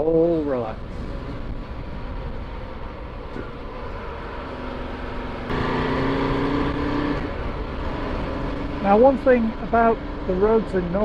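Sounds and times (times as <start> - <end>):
wind and road noise: 0.0 - 11.0
motorcycle engine running: 4.8 - 11.0.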